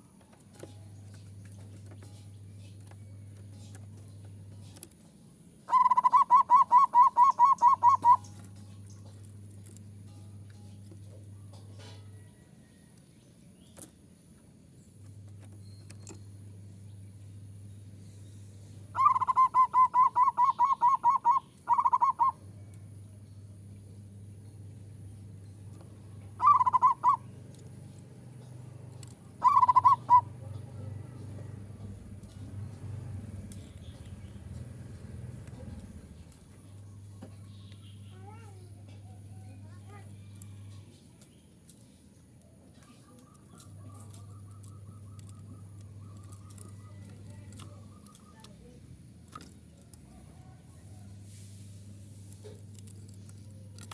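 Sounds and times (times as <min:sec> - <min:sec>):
low steady hum: 0:00.0 - 0:53.9
dove calling trill: 0:05.6 - 0:09.2, 0:18.8 - 0:22.8, 0:25.8 - 0:38.2, 0:43.0 - 0:48.8
dove cooing: 0:05.7 - 0:08.7, 0:18.9 - 0:22.6, 0:26.2 - 0:27.6, 0:28.8 - 0:32.6.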